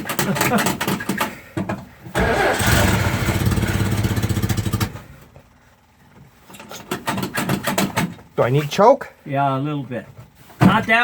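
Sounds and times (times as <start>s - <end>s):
engine cranking clicks: 2.1s - 5.1s
car engine running: 2.2s - 5.2s.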